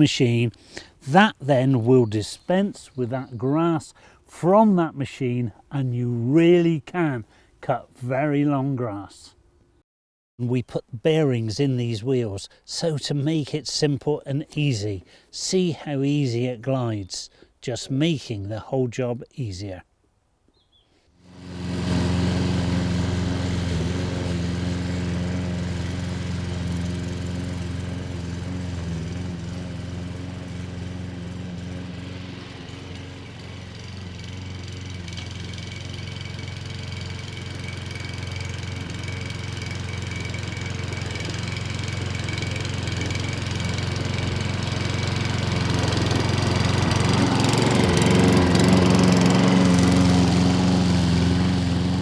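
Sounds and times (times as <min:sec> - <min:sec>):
lawn mower engine running: 0:21.2 - 0:52.0.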